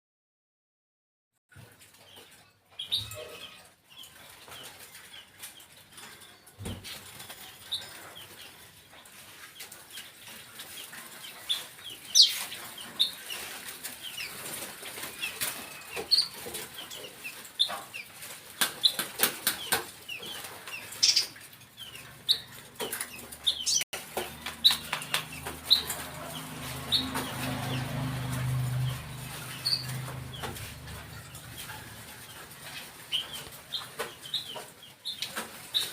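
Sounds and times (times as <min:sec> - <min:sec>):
wings flapping in sharp clicks: 0:18.2 - 0:21.5, 0:22.6 - 0:26.1.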